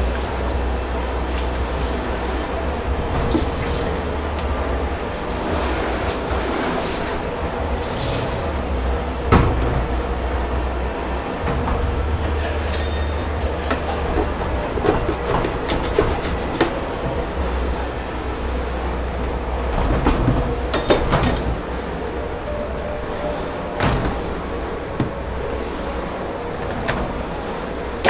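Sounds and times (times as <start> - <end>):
low machine hum: 0.0 - 28.0
dishes and pots clattering: 12.1 - 17.2, 19.7 - 21.7.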